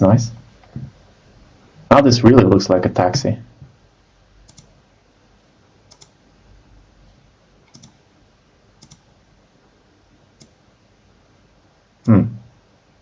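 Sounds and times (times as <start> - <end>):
computer mouse clicks: 4.4 - 4.7, 5.9 - 6.2, 7.6 - 8.0, 8.8 - 9.1, 10.4 - 10.6.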